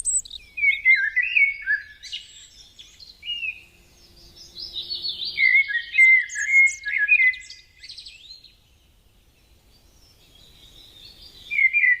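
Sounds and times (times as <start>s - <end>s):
songbird warbling: 0.0s - 3.6s, 4.6s - 8.1s.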